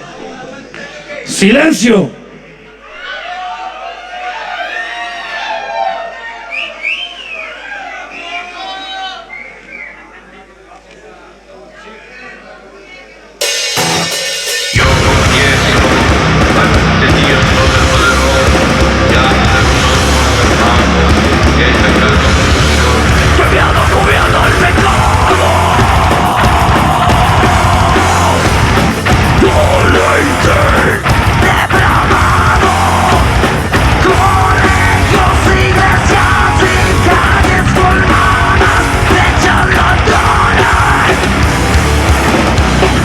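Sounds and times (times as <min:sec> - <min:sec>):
heavy metal band playing live: 0:13.4 - 0:43.0
rapid drum hits: 0:13.4 - 0:43.0.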